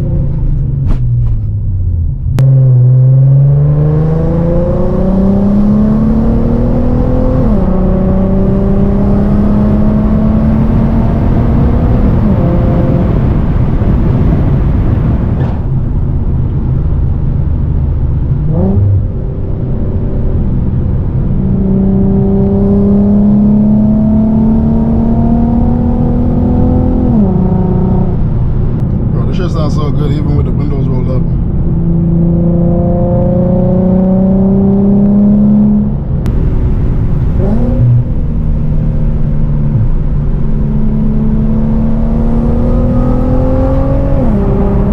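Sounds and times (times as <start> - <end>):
car engine accelerating through gears: 0.0 - 44.9.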